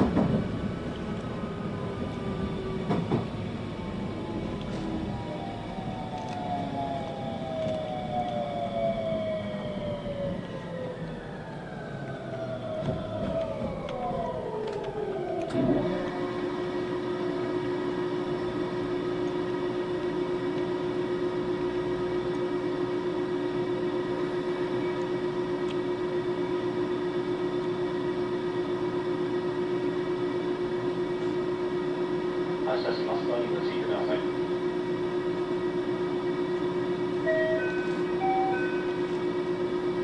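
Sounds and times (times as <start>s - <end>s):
train halting thump: 0.0s - 0.6s, 2.8s - 3.4s, 12.7s - 14.2s
train motors whining: 0.0s - 40.0s.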